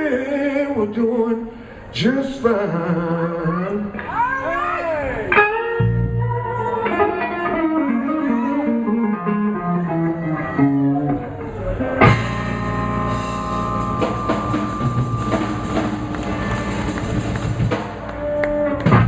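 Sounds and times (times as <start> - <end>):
blues band final chord: 12.0 - 19.0
drums pounding: 12.0 - 19.0
electric guitar run: 12.0 - 19.0
cymbals ringing: 12.1 - 18.0.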